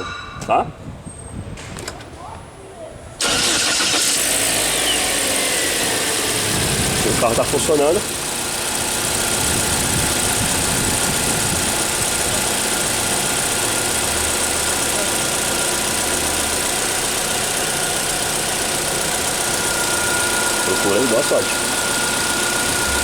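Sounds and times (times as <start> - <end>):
car engine idling: 3.2 - 23.0.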